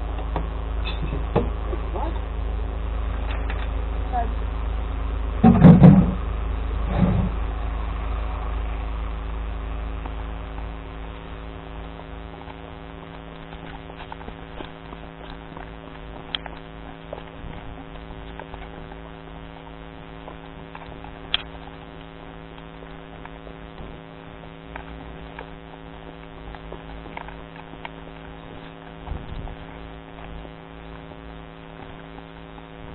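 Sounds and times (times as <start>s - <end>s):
engine hum drone: 0.0s - 32.9s
faint clicks and ticks: 11.8s - 32.9s.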